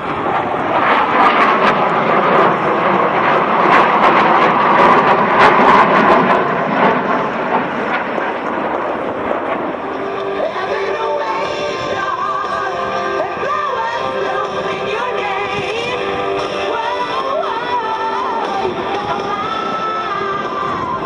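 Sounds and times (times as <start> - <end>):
jet fighters roaring past: 0.0 - 21.0
music with singing voice: 10.3 - 21.0.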